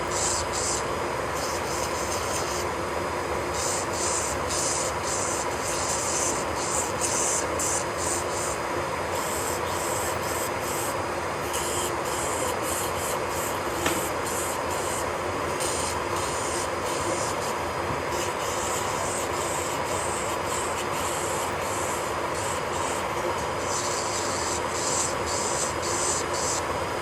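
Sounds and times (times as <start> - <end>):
drill bit rubbing fingernail: 0.0 - 2.6, 3.5 - 8.6, 9.2 - 26.6
electric nail drill whine: 0.0 - 2.8, 3.4 - 26.8.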